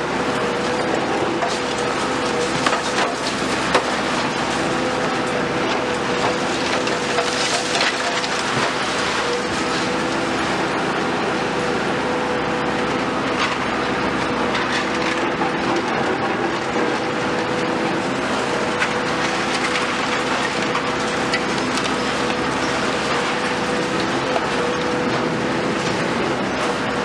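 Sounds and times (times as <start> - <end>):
excavator engine running: 0.0 - 27.0
debris crunching and breaking: 1.3 - 10.3.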